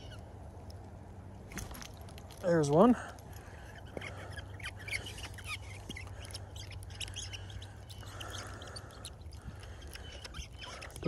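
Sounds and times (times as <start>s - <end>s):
low background hum: 0.0s - 11.0s
high bird chirps: 3.6s - 11.0s.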